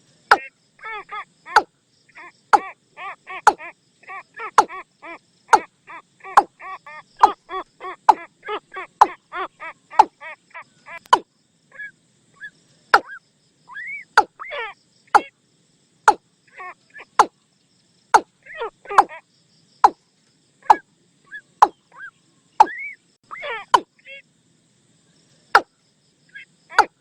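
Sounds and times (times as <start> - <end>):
bird harsh notes: 0.3 - 11.2, 20.6 - 23.9
bird knocking calls: 1.5 - 1.7, 2.5 - 2.8, 3.4 - 3.7, 4.5 - 4.8, 5.5 - 5.7, 7.2 - 8.3, 9.0 - 9.2, 9.9 - 10.2, 11.0 - 11.3, 12.9 - 13.2, 15.1 - 15.3, 17.1 - 17.4, 18.1 - 18.3, 18.9 - 19.2, 20.6 - 20.8, 21.6 - 22.0, 22.6 - 23.0, 26.8 - 27.0.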